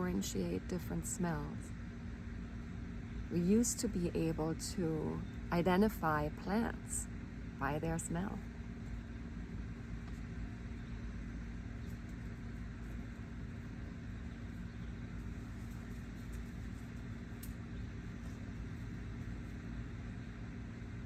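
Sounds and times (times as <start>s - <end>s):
constant hum: 0.0s - 21.0s
low background rumble: 0.0s - 21.0s.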